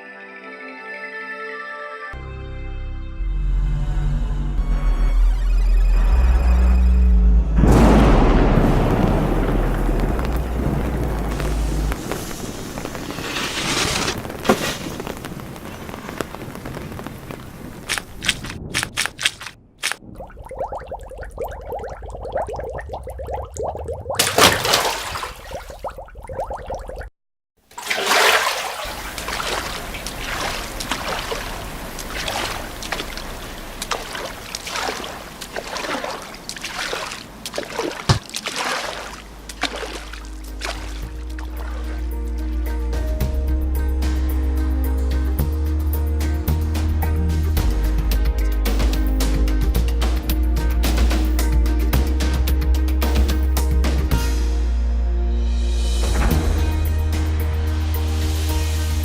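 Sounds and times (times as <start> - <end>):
low drone: 2.8 - 12.2
low rumble: 3.3 - 13.4
rain hissing: 8.5 - 18.5, 27.7 - 38.2
water splashing and trickling: 8.6 - 13.2, 13.9 - 42.6
raindrop ticks: 9.0 - 13.0, 14.2 - 23.6, 29.1 - 38.5.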